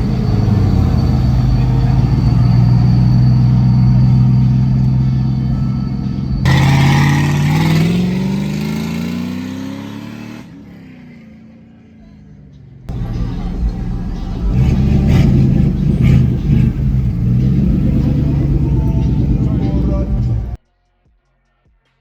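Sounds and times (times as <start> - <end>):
car accelerating hard: 0.0 - 5.5, 6.4 - 11.7, 12.9 - 20.6
car engine running: 0.0 - 8.8, 12.9 - 20.6.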